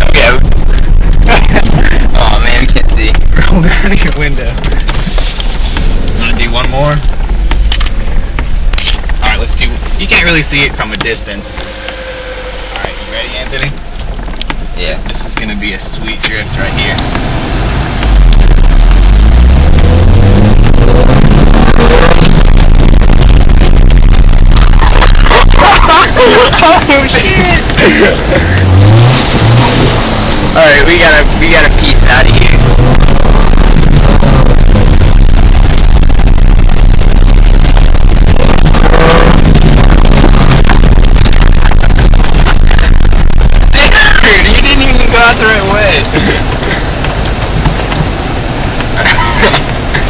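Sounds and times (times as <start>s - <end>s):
car engine revving hard: 15.3s - 50.0s.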